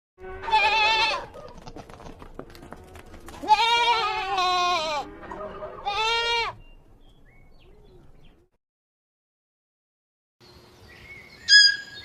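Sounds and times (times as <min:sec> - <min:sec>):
animal bleating: 0:00.2 - 0:01.8, 0:02.6 - 0:06.6.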